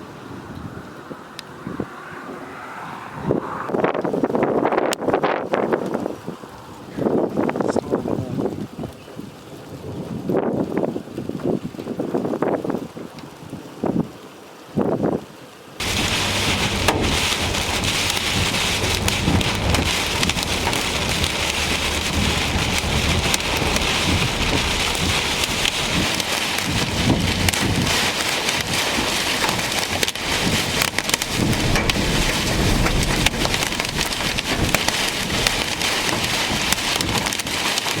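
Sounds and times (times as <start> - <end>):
heavy rain pelting: 15.8 - 38.0.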